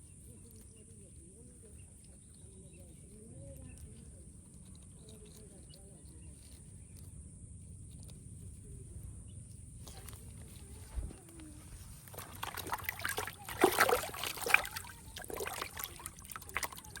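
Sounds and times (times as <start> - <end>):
water sloshing and splashing: 9.8 - 17.0.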